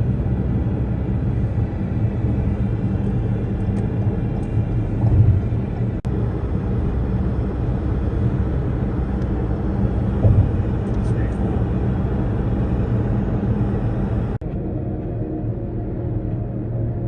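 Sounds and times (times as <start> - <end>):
car cabin rumble of engine and road: 0.0 - 17.0.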